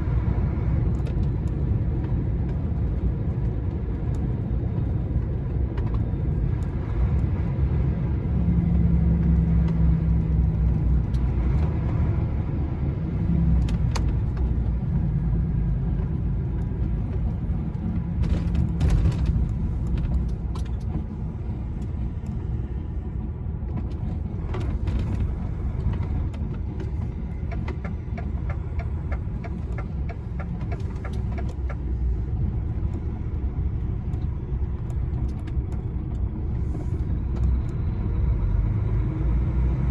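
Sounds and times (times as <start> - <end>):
diesel engine drone: 0.0 - 39.9
road noise: 0.0 - 39.9
clicks and light rattles: 23.7 - 33.2.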